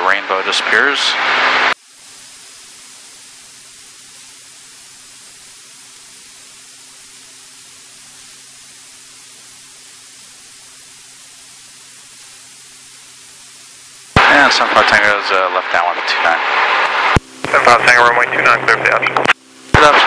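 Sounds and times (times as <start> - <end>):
intercom hiss: 0.0 - 20.0
person speaking: 17.5 - 19.2.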